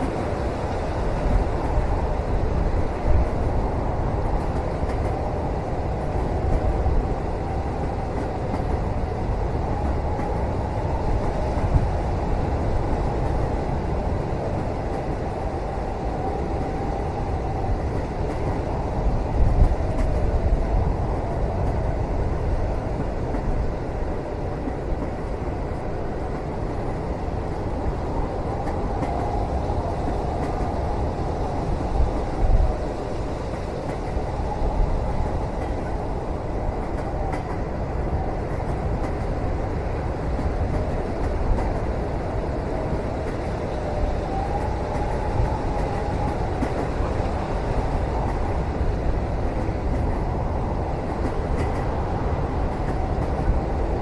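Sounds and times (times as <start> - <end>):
train rumble inside cabin: 0.0 - 54.0
train running gear knocks: 51.1 - 52.0.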